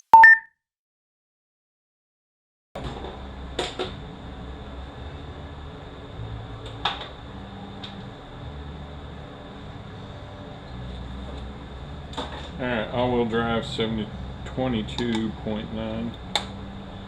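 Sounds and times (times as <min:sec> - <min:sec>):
low workshop hum: 0:02.8 - 0:17.0.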